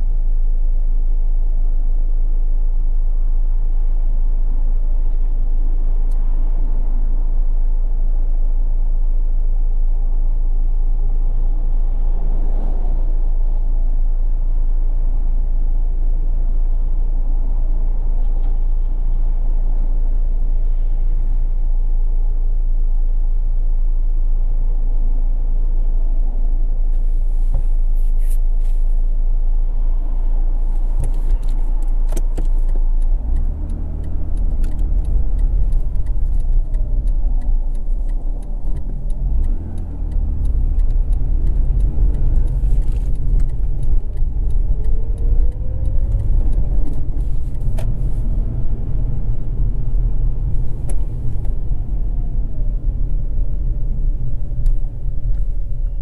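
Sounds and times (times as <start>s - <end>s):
road noise inside car: 0.0s - 56.0s
car engine accelerating: 28.5s - 56.0s.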